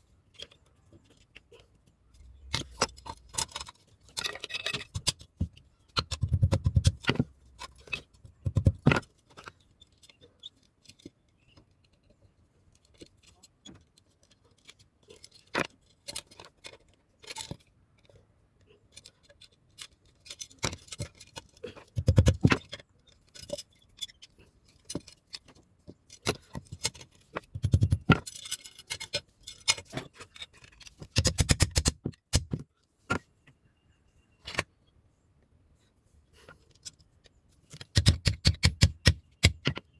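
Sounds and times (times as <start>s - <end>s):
light metallic taps and rattles: 18.9s - 33.3s.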